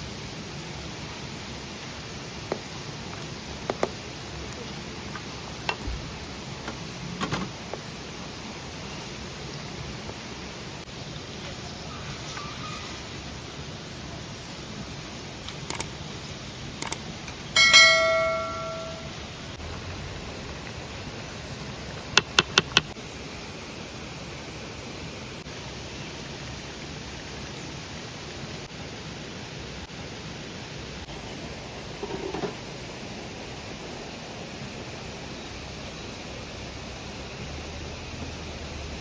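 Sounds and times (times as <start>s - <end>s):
background hiss: 0.0s - 39.0s
metal object ringing: 17.6s - 19.2s.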